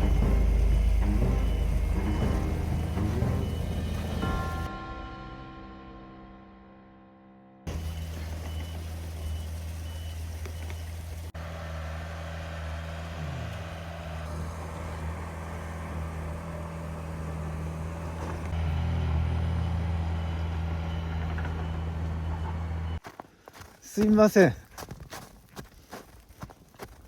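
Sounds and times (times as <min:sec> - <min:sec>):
reversing alarm beeping: 0:00.0 - 0:04.7, 0:07.7 - 0:11.3, 0:15.8 - 0:23.0
heavy vehicle engine running: 0:00.0 - 0:04.8, 0:07.7 - 0:23.0.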